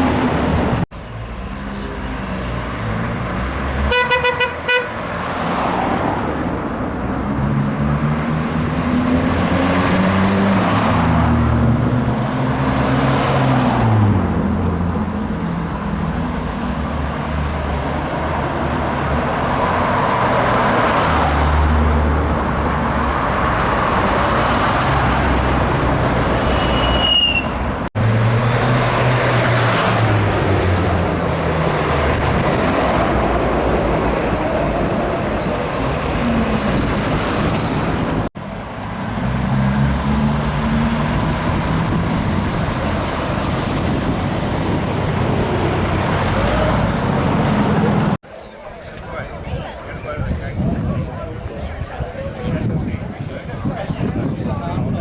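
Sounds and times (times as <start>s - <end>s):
vehicle engines passing: 0.0s - 55.0s.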